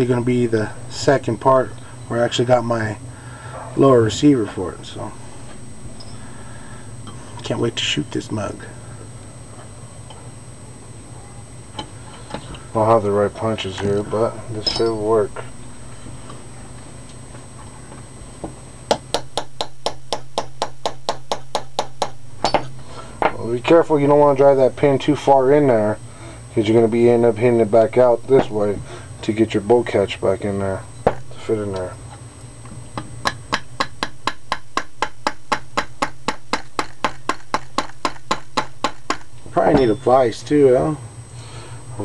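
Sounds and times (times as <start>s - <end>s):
hammer striking metal punch: 14.6s - 15.0s, 18.9s - 23.4s, 33.0s - 40.0s.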